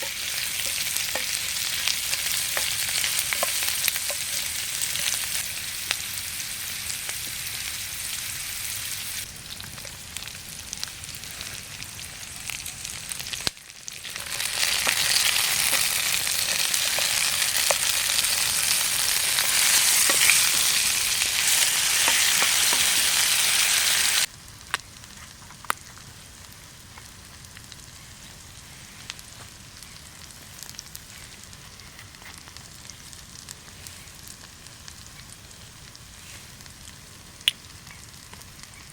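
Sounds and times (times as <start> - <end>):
food sizzling in hot oil: 0.0 - 25.1.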